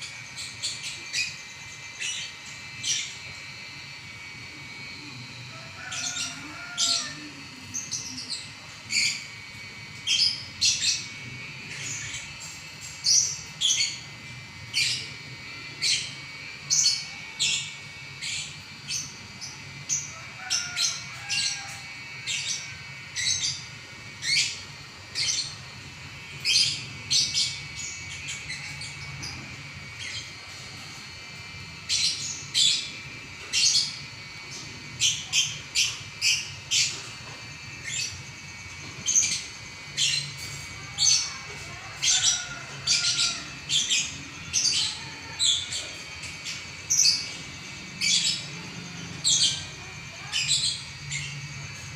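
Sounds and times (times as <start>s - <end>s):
lovebird chattering song: 31.7s - 51.9s.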